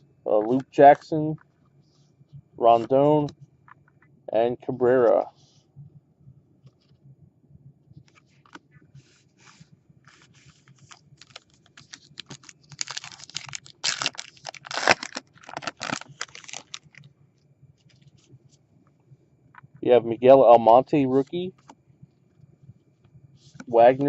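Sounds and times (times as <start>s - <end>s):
cards being handled: 8.1s - 17.0s
foil wrapper tearing and crinkling: 10.8s - 17.0s.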